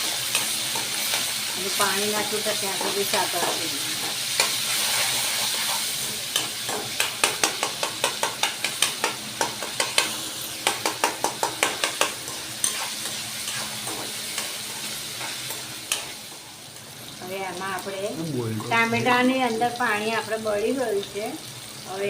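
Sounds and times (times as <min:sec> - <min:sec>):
tomatoes sizzling in oil: 0:00.0 - 0:22.0
spoon knocking against pan: 0:06.7 - 0:12.2.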